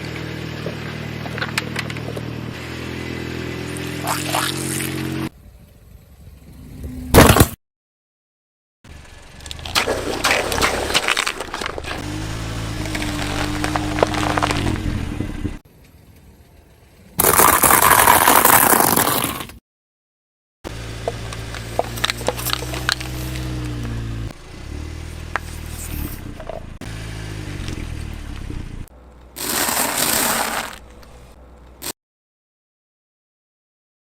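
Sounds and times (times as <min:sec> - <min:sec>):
car engine running: 0:00.0 - 0:04.3, 0:08.9 - 0:15.6, 0:20.7 - 0:31.8
tyre crushing objects: 0:07.1 - 0:07.6, 0:09.6 - 0:15.0, 0:29.4 - 0:31.0.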